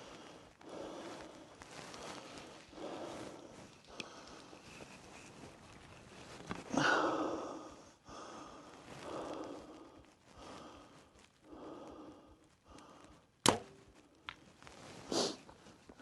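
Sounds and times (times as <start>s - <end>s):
arrow striking target: 13.4s - 13.8s
bow string release crack: 13.4s - 13.8s.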